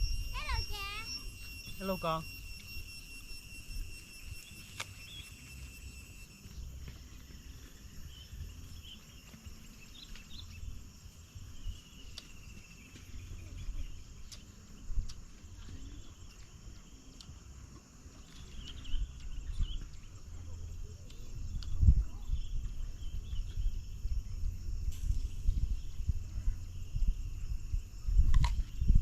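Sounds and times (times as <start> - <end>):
bird chirps: 0.0 - 24.5
insects trilling: 0.0 - 29.0
low rumble: 18.4 - 29.0.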